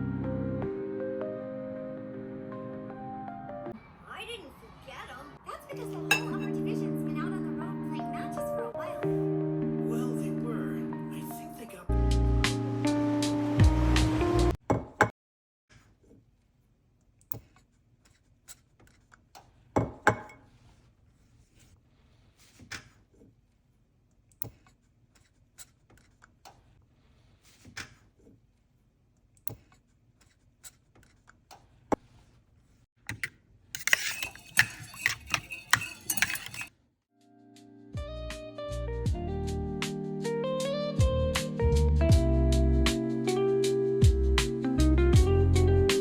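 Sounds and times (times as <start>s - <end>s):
utensils and dishes clinking: 6.1s - 6.6s, 33.2s - 36.7s
rapid clattering of dishes: 33.8s - 36.7s.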